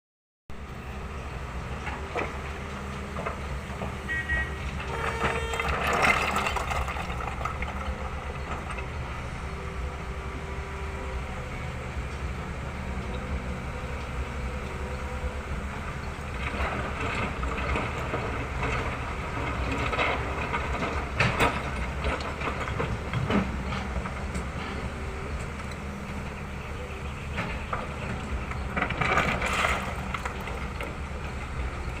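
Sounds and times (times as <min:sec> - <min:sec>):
diesel engine running: 0:00.5 - 0:32.0
bucket clanking and scraping rock: 0:04.8 - 0:08.8, 0:28.8 - 0:30.8.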